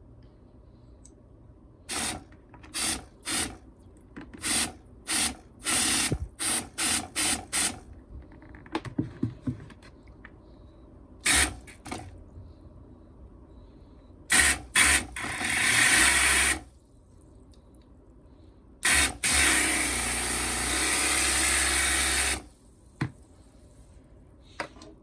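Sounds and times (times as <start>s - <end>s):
spray bottle hissing bursts: 1.9s - 3.6s, 4.4s - 7.8s.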